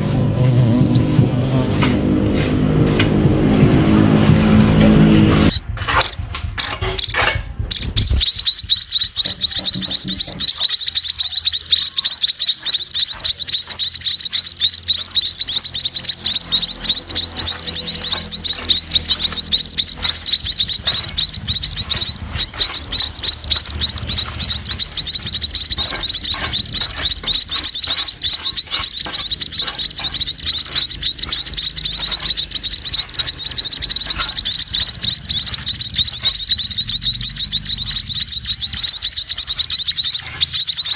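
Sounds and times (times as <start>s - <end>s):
nestlings begging chirps: 0.0s - 40.9s.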